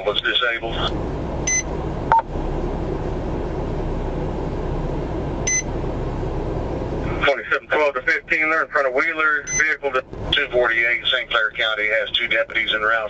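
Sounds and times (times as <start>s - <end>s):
car cabin hum: 0.0s - 13.0s
police radio beeps: 1.5s - 2.2s, 5.5s - 5.7s, 9.4s - 9.8s.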